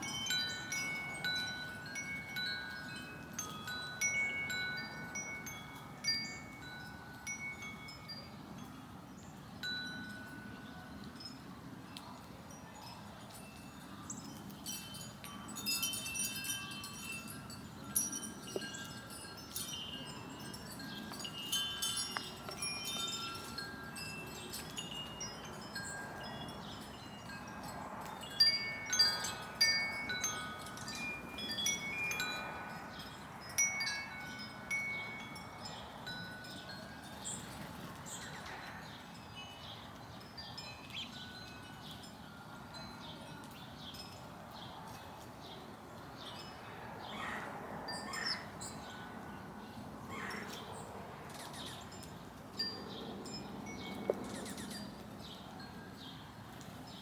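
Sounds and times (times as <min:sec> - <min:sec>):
wind chime ringing: 0:00.0 - 0:09.0, 0:09.6 - 0:11.6, 0:12.5 - 0:44.6.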